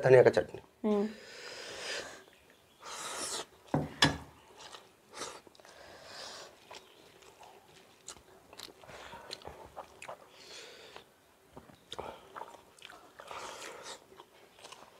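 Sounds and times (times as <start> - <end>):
wet chewing and mouth clicks: 4.4 - 14.9.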